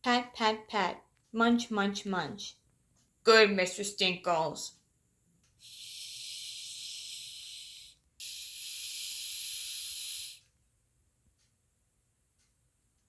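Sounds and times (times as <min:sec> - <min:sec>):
person hissing through teeth: 0:05.6 - 0:10.5.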